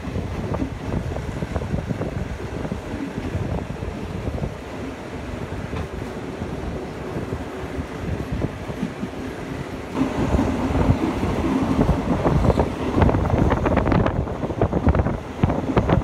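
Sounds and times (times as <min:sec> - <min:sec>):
train wheels rumbling: 0:00.0 - 0:16.0
wind buffeting microphone: 0:00.0 - 0:16.0
sharp train clatter: 0:07.8 - 0:16.0.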